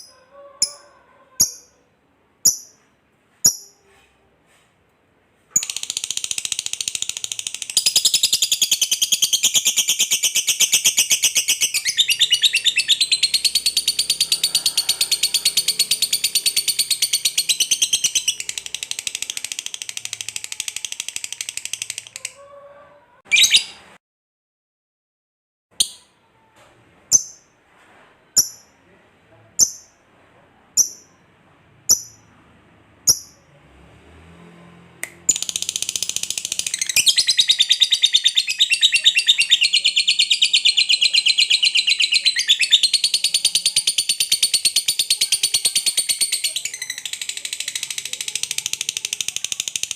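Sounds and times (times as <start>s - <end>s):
lovebird chattering trill: 5.6s - 22.2s, 30.8s - 31.2s, 31.9s - 32.2s, 33.1s - 33.4s, 35.3s - 49.9s.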